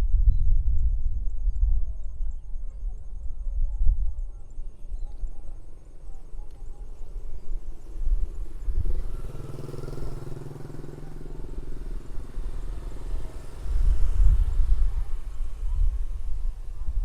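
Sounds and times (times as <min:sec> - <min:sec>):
small motorcycle engine passing: 0:05.6 - 0:17.0.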